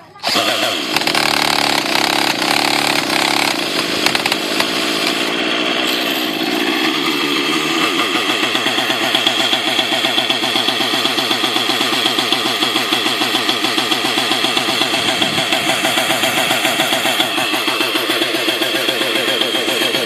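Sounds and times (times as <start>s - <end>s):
model helicopter engine idling: 0.0s - 20.0s.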